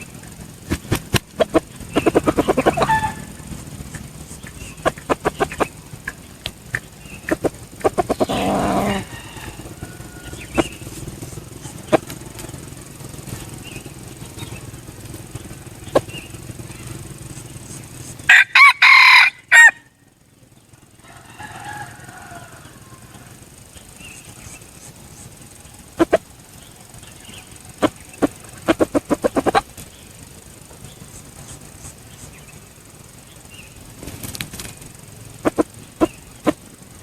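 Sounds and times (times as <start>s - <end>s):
rooster wings flapping: 0.0s - 19.9s, 21.0s - 32.7s, 33.7s - 37.0s
rooster crowing: 1.4s - 4.1s, 7.4s - 12.8s, 18.2s - 20.0s, 20.9s - 23.7s.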